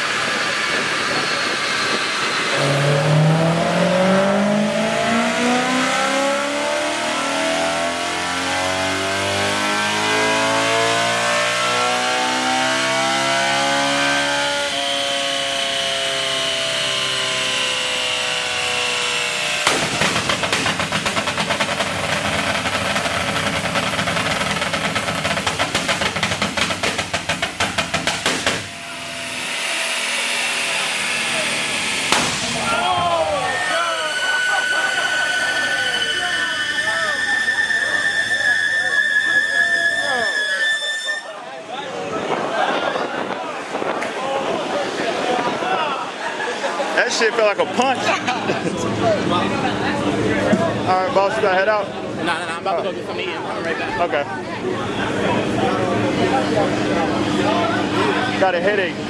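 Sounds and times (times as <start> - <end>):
car engine revving: 0.0 - 38.9, 47.6 - 59.0
exhaust pops and crackles: 19.6 - 28.8.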